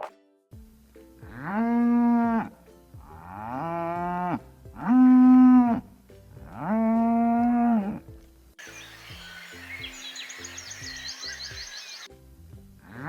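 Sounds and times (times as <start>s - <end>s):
cow mooing: 3.2s - 5.8s, 6.6s - 8.0s.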